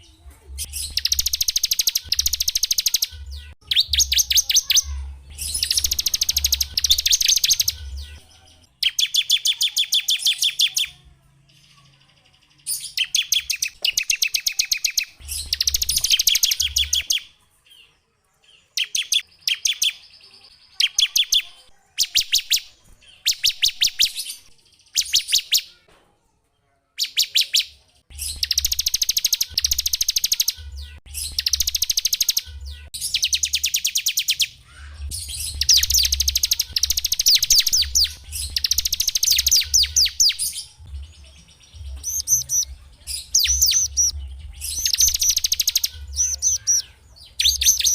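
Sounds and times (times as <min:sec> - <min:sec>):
songbirds singing rapid trills: 0:00.0 - 0:25.8, 0:26.9 - 0:47.9.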